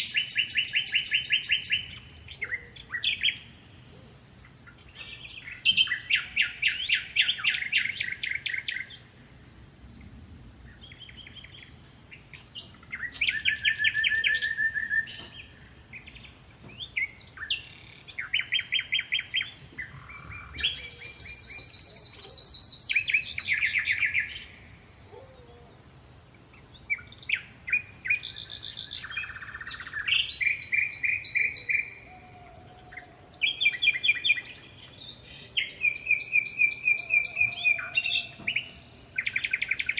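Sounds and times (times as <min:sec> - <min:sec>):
songbirds trilling: 0:00.0 - 0:09.1, 0:10.0 - 0:39.9.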